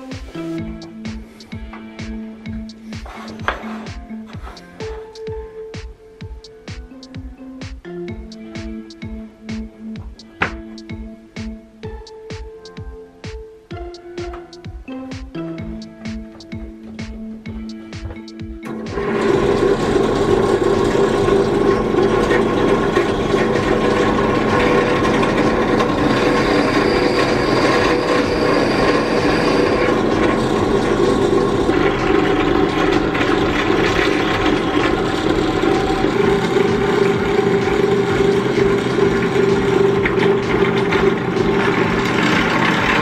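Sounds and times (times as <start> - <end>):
woodworking power tool running: 18.6 - 43.0.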